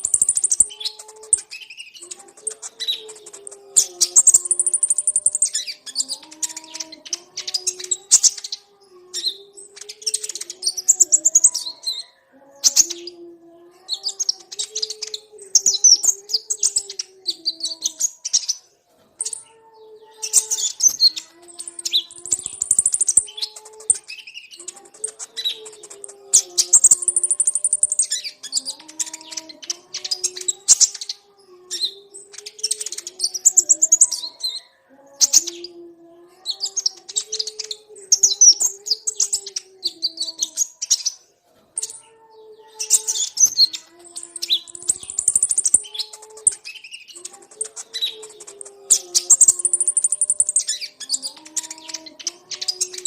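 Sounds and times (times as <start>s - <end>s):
bird twittering: 0.0s - 13.2s, 20.2s - 35.8s, 42.8s - 53.0s.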